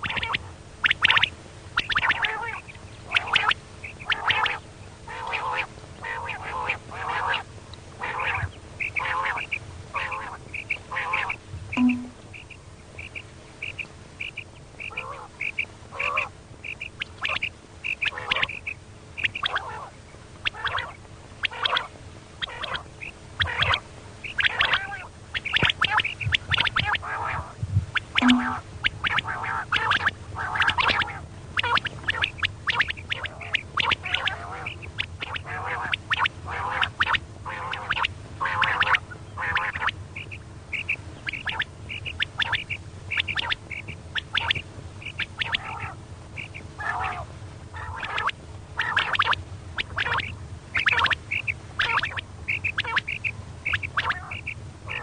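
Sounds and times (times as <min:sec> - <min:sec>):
quail calling harsh notes: 0:00.0 - 0:55.0
steady low hum: 0:00.0 - 0:55.0
short clear higher notes: 0:11.8 - 0:12.2, 0:28.2 - 0:28.6.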